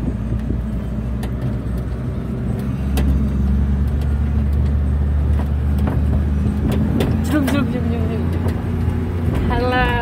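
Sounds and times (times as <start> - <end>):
car engine drone inside cabin: 0.0 - 10.0.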